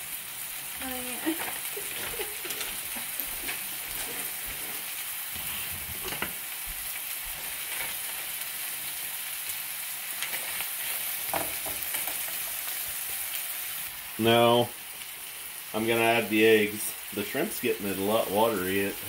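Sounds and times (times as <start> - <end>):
shrimp and vegetables sizzling: 0.0 - 19.0
wooden spoon scraping pan: 1.4 - 6.4.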